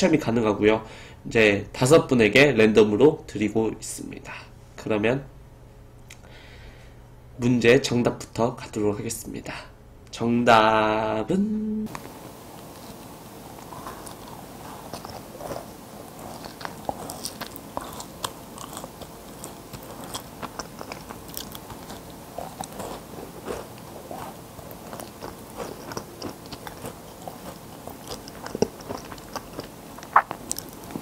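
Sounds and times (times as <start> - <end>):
cookie crunching: 11.9 - 31.0.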